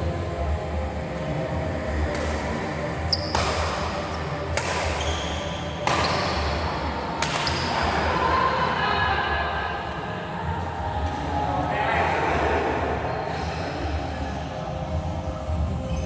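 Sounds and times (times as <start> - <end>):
low hall hum: 0.0 - 16.0
rackets hitting shuttlecock: 3.1 - 7.9.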